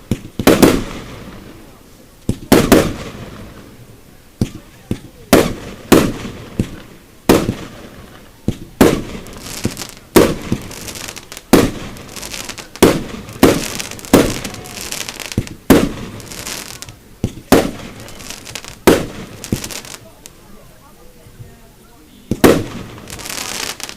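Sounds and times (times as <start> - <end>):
firework shells bursting: 5.3 - 20.0, 22.3 - 23.9.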